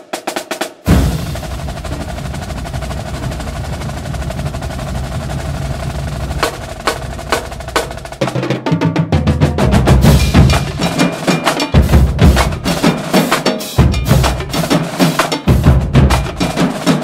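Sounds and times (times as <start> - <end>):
drum roll: 0.0 - 17.0
sharp drum hits: 0.8 - 8.4, 9.3 - 14.8.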